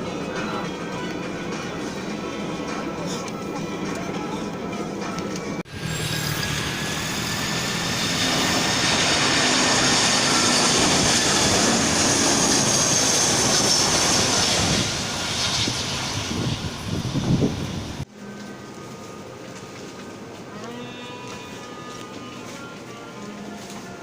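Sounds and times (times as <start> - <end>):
jet engines running: 0.0 - 18.1.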